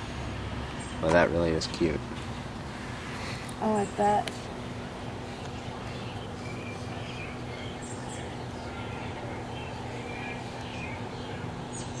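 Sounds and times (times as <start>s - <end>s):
low background hum: 0.0s - 12.0s
young bird chirping: 5.3s - 12.0s.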